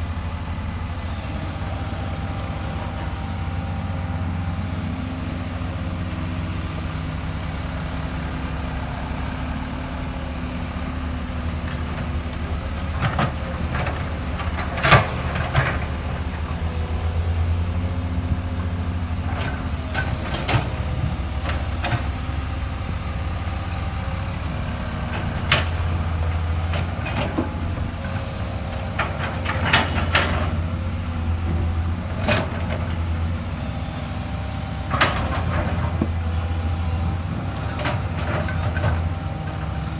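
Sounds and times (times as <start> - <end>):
excavator diesel engine running: 0.0 - 39.9
digging knocks and clanks: 11.6 - 16.2, 19.2 - 22.5, 24.9 - 33.2, 34.8 - 39.3.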